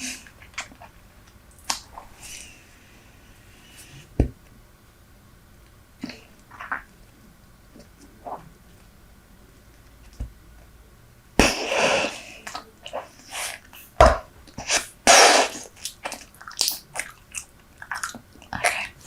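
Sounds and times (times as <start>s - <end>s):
gum chewing mouth sounds: 15.6s - 19.0s.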